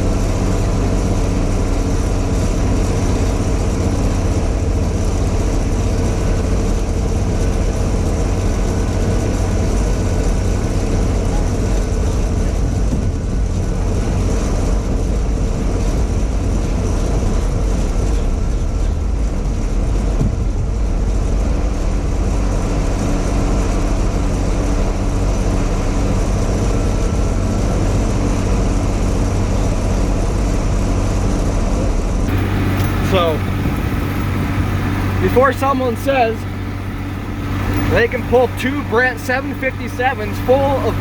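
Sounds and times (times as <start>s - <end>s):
tractor diesel engine under load: 32.3s - 41.0s.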